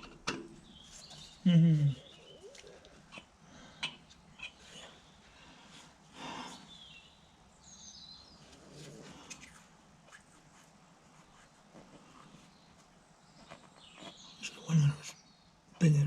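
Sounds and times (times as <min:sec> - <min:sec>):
small bird chirping: 0:00.6 - 0:03.2, 0:12.3 - 0:16.0.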